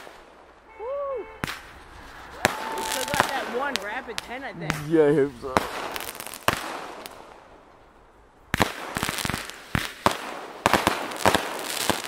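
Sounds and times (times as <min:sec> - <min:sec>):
fireworks bangs and crackling: 0:00.0 - 0:00.7, 0:01.4 - 0:12.0.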